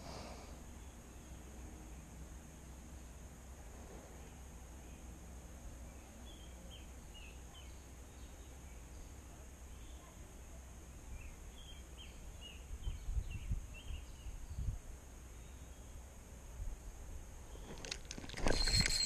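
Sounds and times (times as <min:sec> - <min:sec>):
small bird chirping: 0:05.8 - 0:10.2, 0:11.0 - 0:16.0.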